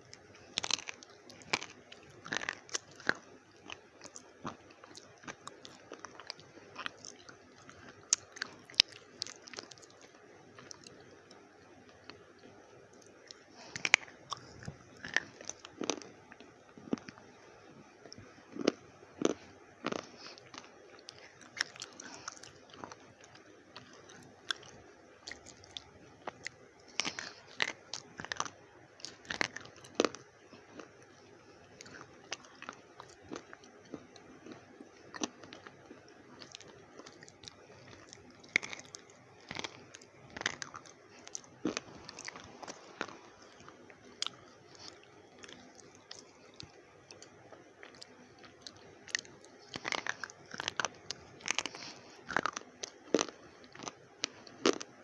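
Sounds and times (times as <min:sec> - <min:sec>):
pencils being crunched by teeth: 0:31.8 - 0:55.0.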